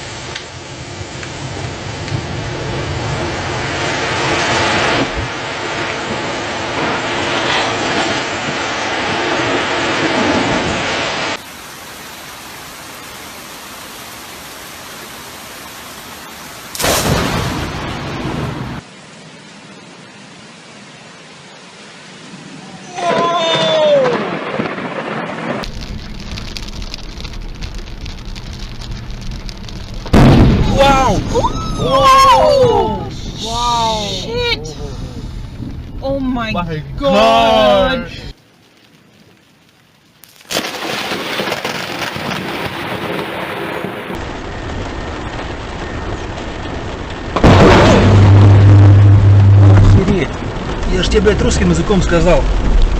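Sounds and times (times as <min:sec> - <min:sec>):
steady rain hiss: 0:00.0 - 0:52.9
thunder rumbling: 0:00.6 - 0:11.5, 0:16.7 - 0:18.8, 0:22.6 - 0:38.4, 0:40.5 - 0:52.9
loud close thunder blast: 0:16.8 - 0:18.8, 0:30.0 - 0:32.8, 0:47.3 - 0:52.9.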